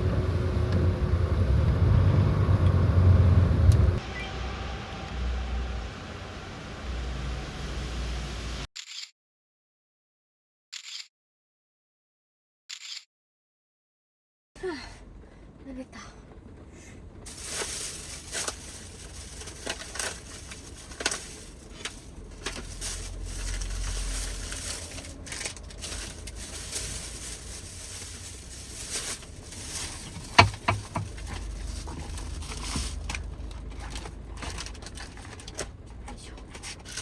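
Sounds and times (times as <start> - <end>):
rain on a van roof: 17.2 - 37.0
close crunching and crackling: 17.3 - 37.0.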